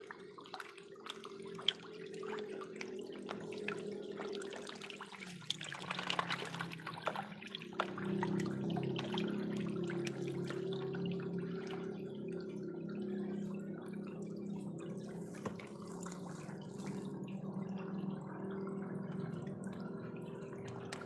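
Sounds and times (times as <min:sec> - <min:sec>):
water trickling and dripping: 0:00.0 - 0:21.0.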